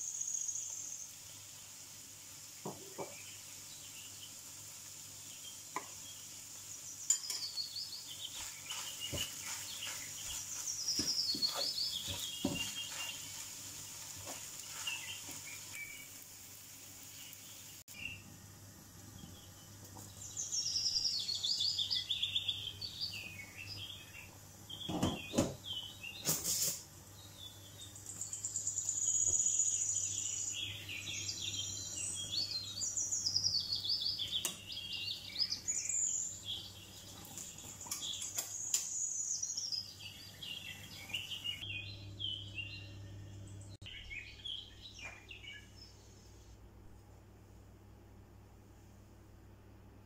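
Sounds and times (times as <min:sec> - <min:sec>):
small birds chirping: 0:00.0 - 0:01.5, 0:02.7 - 0:18.3, 0:19.0 - 0:46.5.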